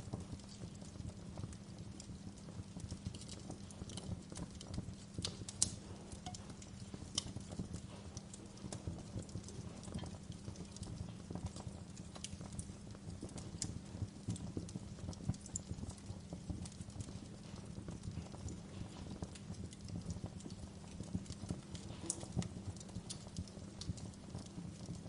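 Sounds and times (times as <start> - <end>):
low rumble of flame: 0.0 - 25.0
wood fire crackling and popping: 0.0 - 25.0.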